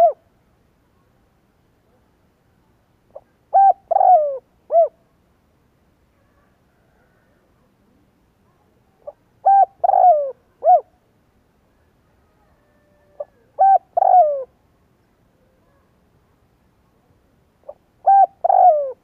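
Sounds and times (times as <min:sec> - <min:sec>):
dove cooing: 0:00.0 - 0:00.2, 0:03.1 - 0:05.0, 0:09.0 - 0:10.9, 0:12.5 - 0:14.5, 0:17.6 - 0:19.0.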